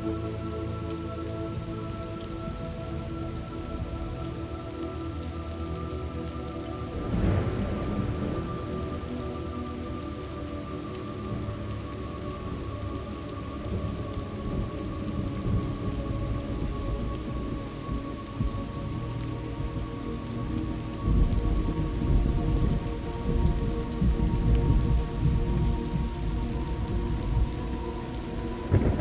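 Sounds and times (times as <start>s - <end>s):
rain falling on surfaces: 0.0s - 29.0s
thunder rumbling: 6.7s - 12.9s, 13.6s - 29.0s.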